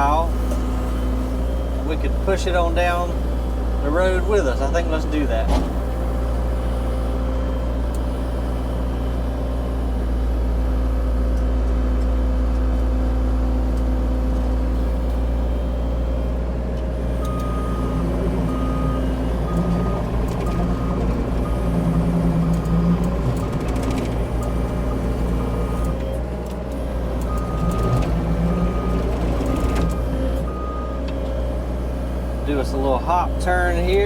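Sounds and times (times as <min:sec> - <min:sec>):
diesel engine running: 0:00.0 - 0:34.0
travel alarm beeping: 0:17.2 - 0:25.9.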